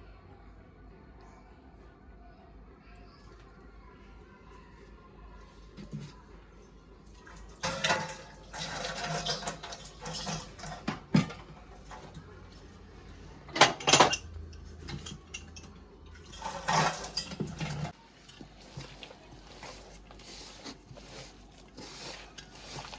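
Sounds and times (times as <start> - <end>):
utensils and bowl clattering: 5.7 - 22.9
wet food handling: 14.8 - 22.9.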